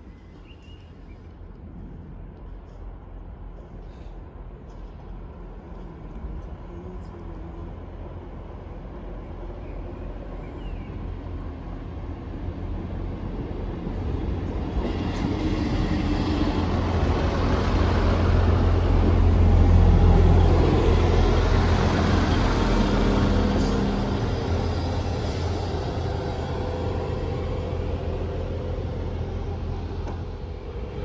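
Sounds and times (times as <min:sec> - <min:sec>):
train engine rumble: 0:00.0 - 0:31.0
train wheel noise: 0:11.0 - 0:31.0.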